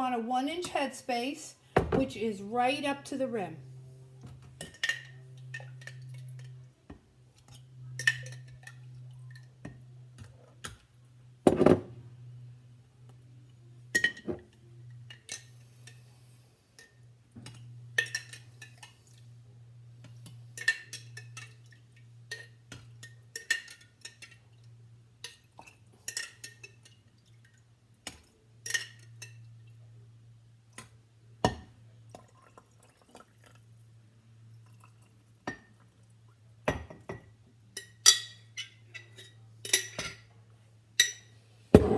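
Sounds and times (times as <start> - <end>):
glass jars clinking: 36.7 - 40.2.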